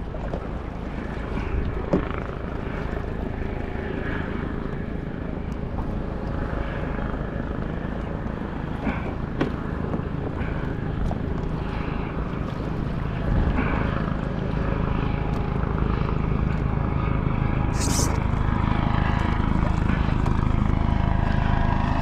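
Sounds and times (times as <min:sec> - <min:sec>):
helicopter flying overhead: 0:00.0 - 0:22.0.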